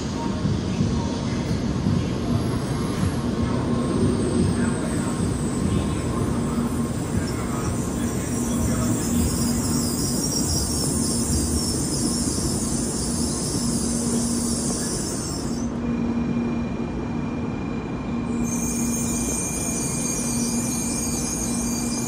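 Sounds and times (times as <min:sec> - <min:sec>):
train running noise: 0:00.0 - 0:22.0
high brake squeal: 0:07.0 - 0:16.5, 0:18.2 - 0:22.0.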